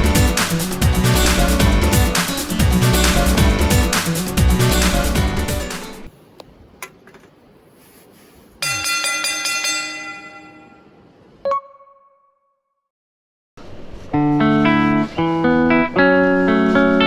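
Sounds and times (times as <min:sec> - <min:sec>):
music: 0:00.0 - 0:06.1, 0:14.1 - 0:17.0
bell-like chime: 0:08.6 - 0:11.1.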